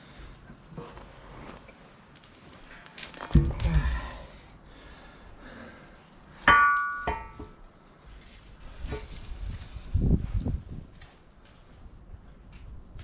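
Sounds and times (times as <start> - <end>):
ringing metal clang: 6.5 - 7.6.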